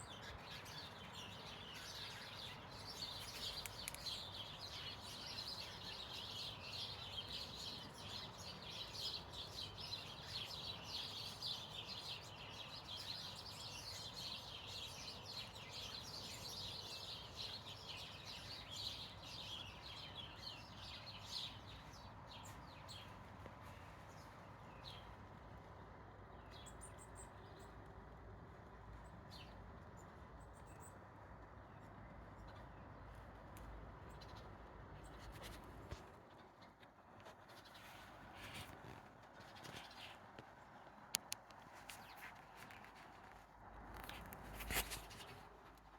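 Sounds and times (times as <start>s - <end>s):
birds chirping and twittering: 0.0s - 23.1s.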